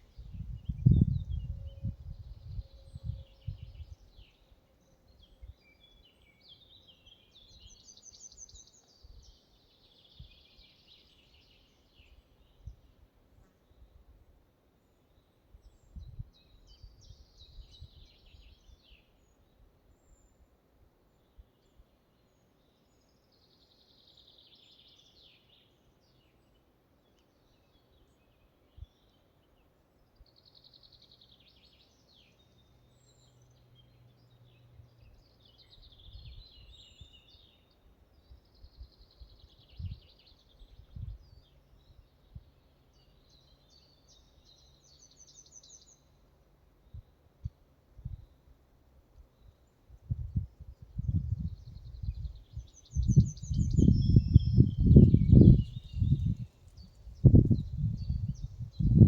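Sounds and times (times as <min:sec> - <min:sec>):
songbird singing: 0:00.0 - 0:59.0
forest ambience: 0:18.0 - 0:50.1.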